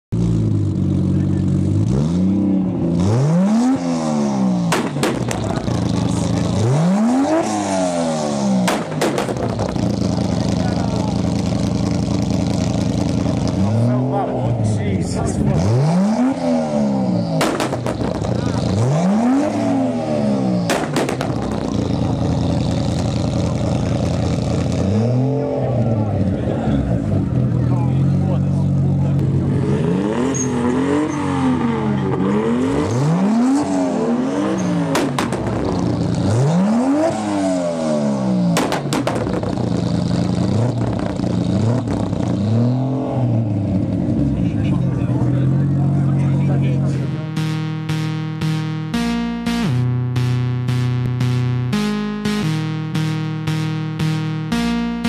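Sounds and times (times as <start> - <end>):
car engine idling and revving: 0.1 - 55.0
exhaust cracks: 4.6 - 25.0, 32.8 - 37.4, 38.4 - 47.2.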